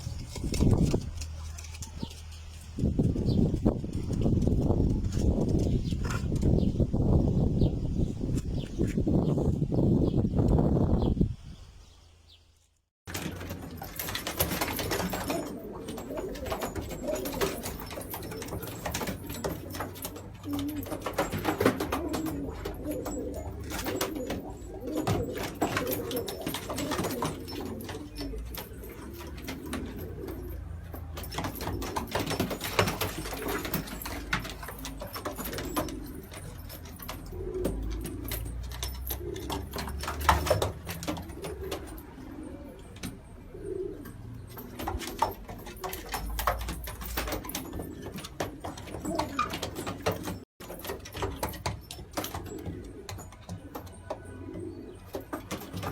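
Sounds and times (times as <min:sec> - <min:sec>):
pigeons cooing: 0:13.2 - 0:55.9.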